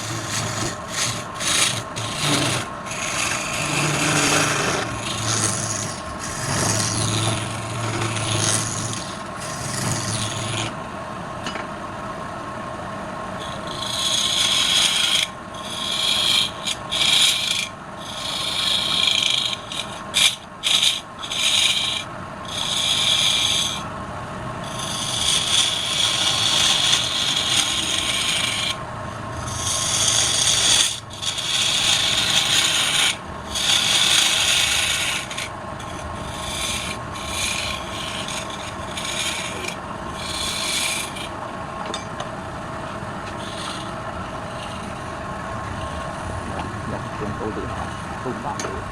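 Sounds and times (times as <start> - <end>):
lathe tool rasping on wood: 0.0 - 10.8, 13.4 - 23.9, 24.6 - 42.0, 42.8 - 48.9
lathe motor hum: 0.0 - 11.6, 12.5 - 48.9.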